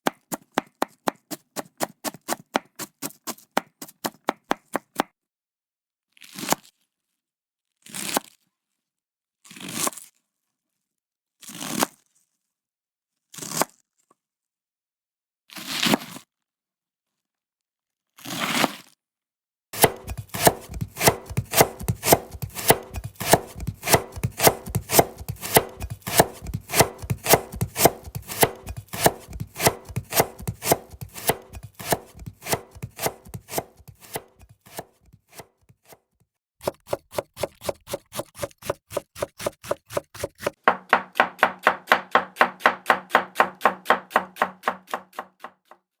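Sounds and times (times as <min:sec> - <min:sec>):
knife chopping on cutting board: 0:00.0 - 0:05.1, 0:19.8 - 0:36.0, 0:36.6 - 0:45.8.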